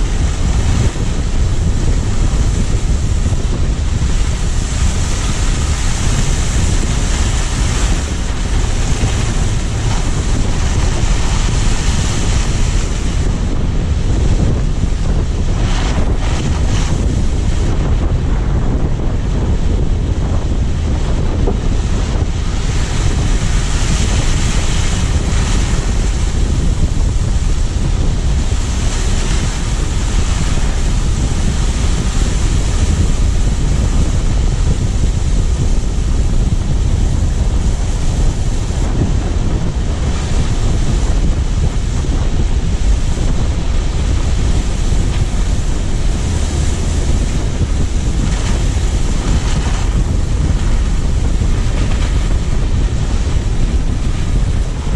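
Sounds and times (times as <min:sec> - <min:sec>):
tyre and road noise: 0:00.0 - 0:19.8
wind buffeting microphone: 0:00.0 - 0:54.9.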